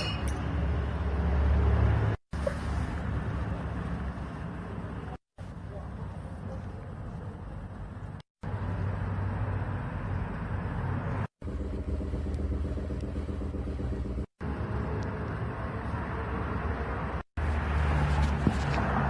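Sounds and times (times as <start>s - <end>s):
car engine idling: 11.4s - 14.6s.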